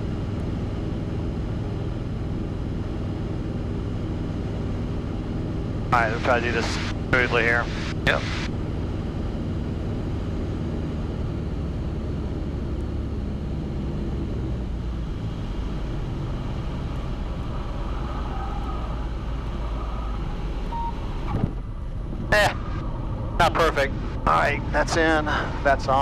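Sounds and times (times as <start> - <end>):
airplane engine and propeller drone: 0.0 - 26.0.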